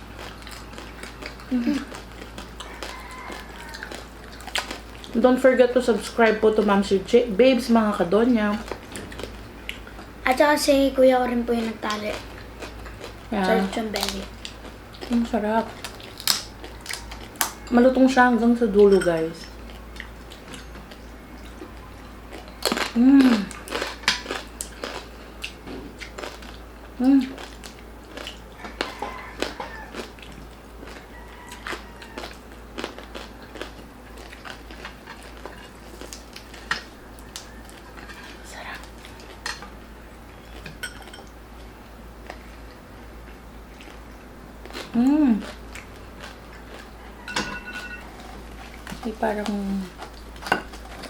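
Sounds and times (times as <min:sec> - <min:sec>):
crunching and chewing crispy skin: 0:00.0 - 0:06.2, 0:08.4 - 0:10.2, 0:11.6 - 0:18.0, 0:19.5 - 0:51.0
person humming: 0:23.0 - 0:23.5, 0:44.9 - 0:45.4.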